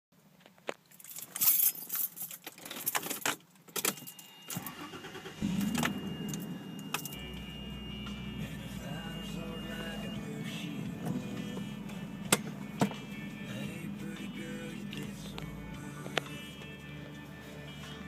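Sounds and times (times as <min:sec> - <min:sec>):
keys jangling: 0:00.9 - 0:04.4
high warning tone: 0:03.8 - 0:18.0
car engine starting and idling: 0:04.1 - 0:18.0.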